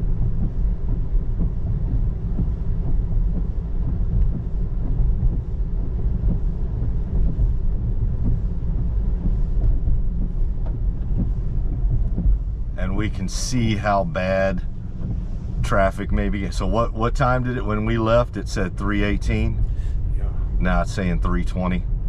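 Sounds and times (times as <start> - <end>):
tyre and road noise in car: 0.0 - 22.0
faint ticks: 0.2 - 12.4.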